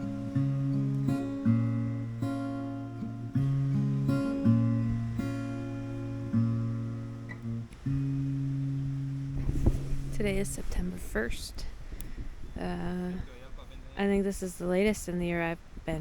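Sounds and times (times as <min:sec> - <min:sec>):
acoustic guitar strumming chords: 0:00.0 - 0:11.4.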